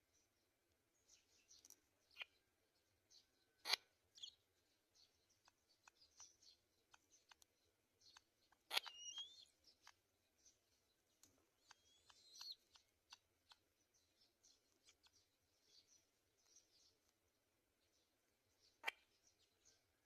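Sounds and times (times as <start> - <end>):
high bird calls: 5.0 - 17.1, 18.6 - 20.0.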